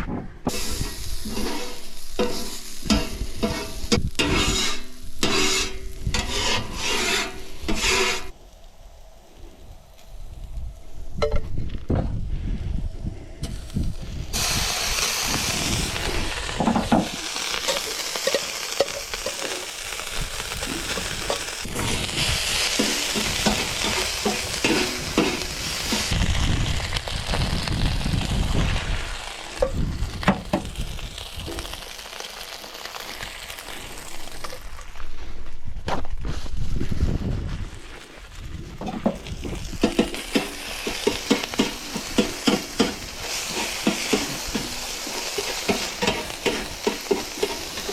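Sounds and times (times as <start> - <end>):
utensil scraping and knocking pan: 0.5 - 8.3, 22.8 - 26.1, 39.8 - 47.9
rice sizzling in a pan: 0.5 - 11.0, 13.6 - 34.9, 39.2 - 47.9.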